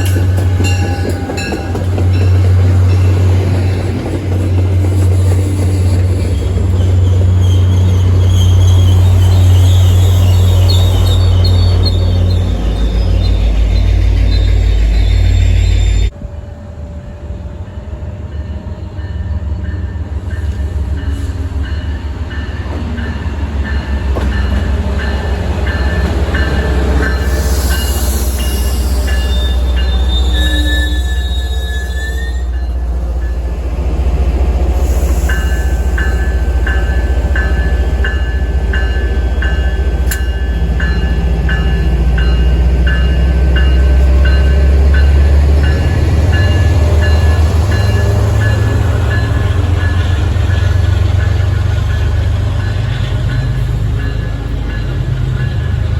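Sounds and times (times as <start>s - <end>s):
train rumbling past: 0.0s - 55.9s
wheel squeal: 5.8s - 16.1s, 27.2s - 32.7s.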